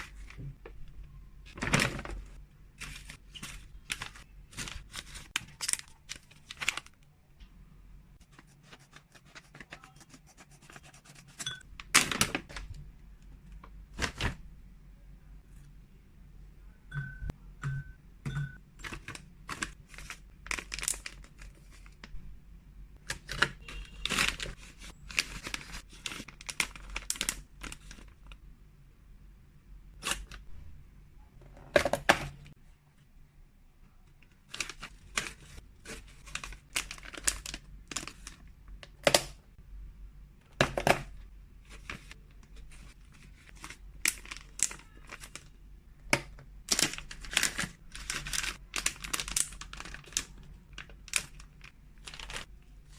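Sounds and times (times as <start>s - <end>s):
plastic packaging crinkling: 1.5s - 7.1s, 18.8s - 22.2s, 23.0s - 28.4s, 34.2s - 38.5s, 41.6s - 45.6s, 46.6s - 52.9s.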